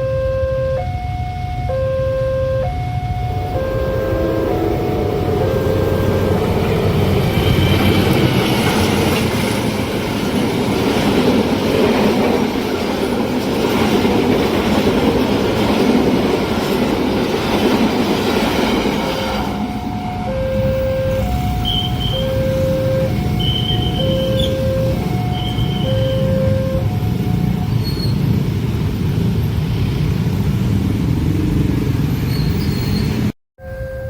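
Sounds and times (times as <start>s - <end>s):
two-tone crossing warning signal: 0.0s - 13.4s, 18.7s - 28.4s, 33.6s - 34.0s
train wheels running over rails: 4.5s - 20.3s.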